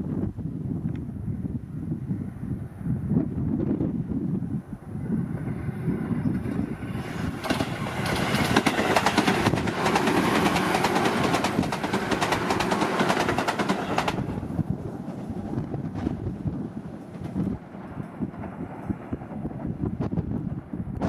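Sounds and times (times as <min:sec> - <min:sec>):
train wheels clattering: 0:06.6 - 0:14.5.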